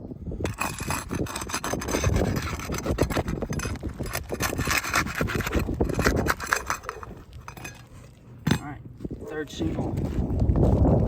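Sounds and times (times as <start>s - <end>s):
roofing shingle scraping and crackling: 0.5s - 8.4s.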